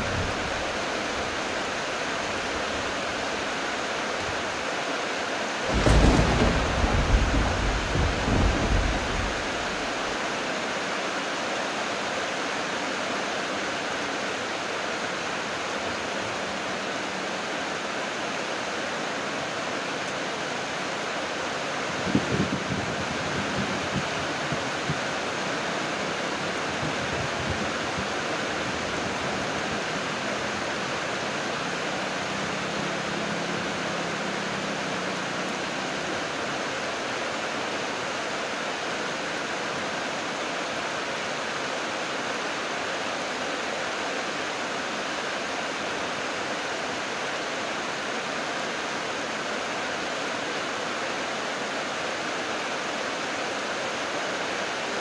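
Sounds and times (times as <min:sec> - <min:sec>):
heavy rain falling: 0:00.0 - 0:55.0
low rumble of thunder: 0:05.6 - 0:10.2, 0:22.0 - 0:31.3.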